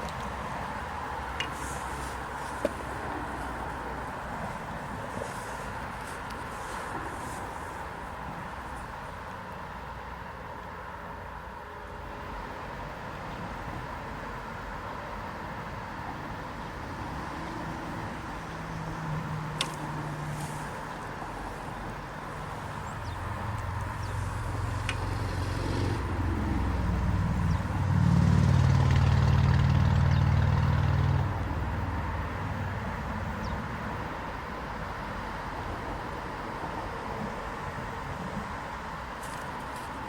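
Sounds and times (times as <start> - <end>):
vehicle engine passing by: 17.2 - 33.7.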